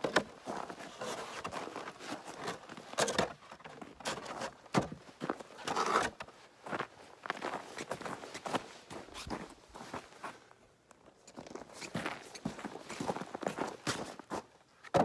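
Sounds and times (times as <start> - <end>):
footsteps crunching through snow: 5.1 - 10.5, 11.5 - 14.5.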